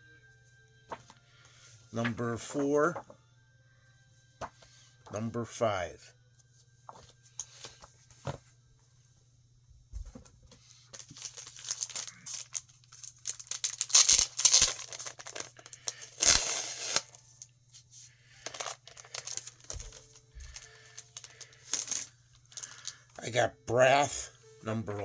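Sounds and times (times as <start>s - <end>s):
plastic and paper packaging crinkling: 10.5s - 23.2s.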